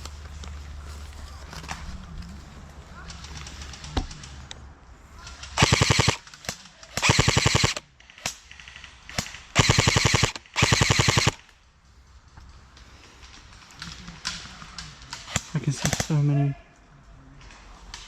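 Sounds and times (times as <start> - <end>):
airsoft rifle automatic fire: 5.6 - 6.2, 6.9 - 8.3, 9.1 - 11.4.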